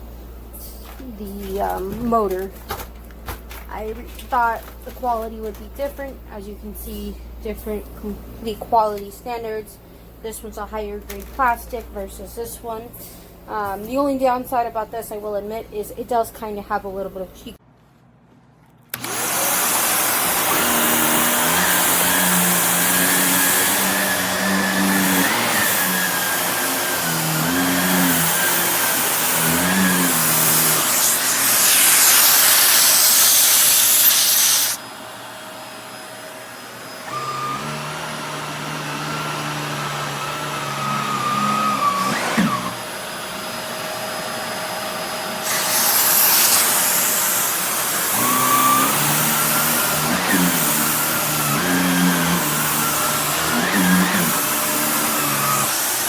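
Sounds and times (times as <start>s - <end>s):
upright vacuum cleaner running: 18.9s - 56.0s.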